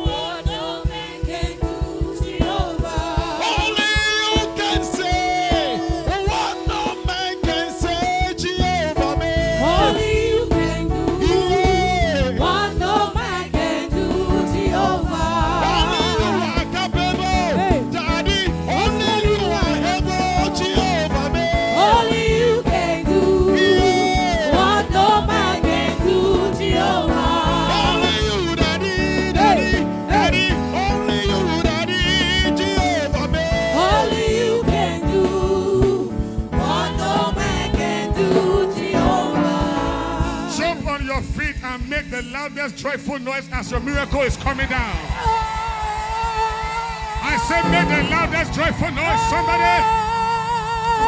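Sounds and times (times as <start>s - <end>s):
gospel praise music: 0.0s - 51.0s.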